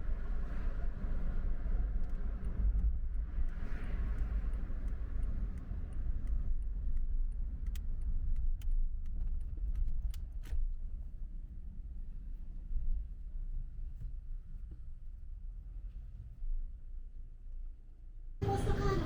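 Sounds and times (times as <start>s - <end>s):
car road rumble: 18.4s - 19.0s.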